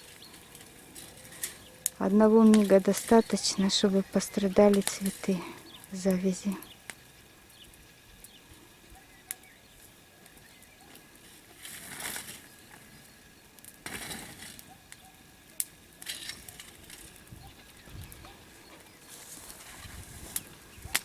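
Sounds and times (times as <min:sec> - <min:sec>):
dry material rustling and crunching: 0:00.0 - 0:06.6, 0:11.0 - 0:14.8, 0:16.0 - 0:21.0
bonfire crackles: 0:00.0 - 0:21.0.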